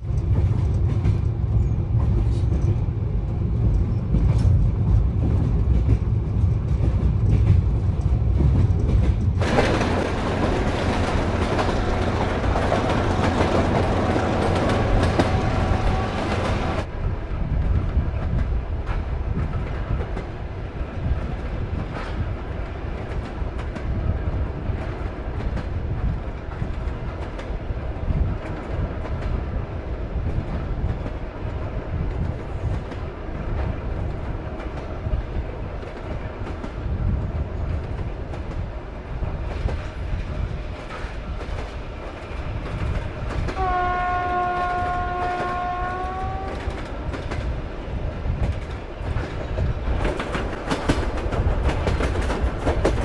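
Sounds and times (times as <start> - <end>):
train carriage rumbling: 0.0 - 53.0
train horn: 11.6 - 16.9, 43.6 - 46.8.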